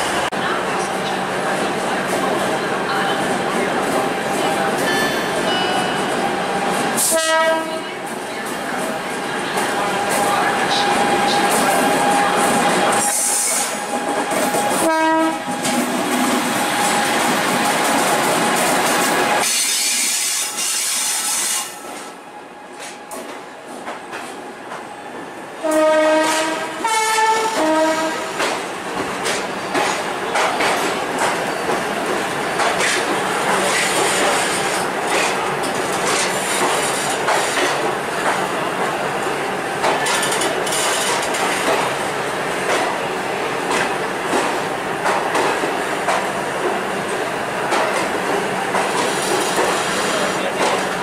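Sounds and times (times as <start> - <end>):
train horn blasts: 7.0 - 8.0, 14.7 - 15.6, 25.6 - 28.4.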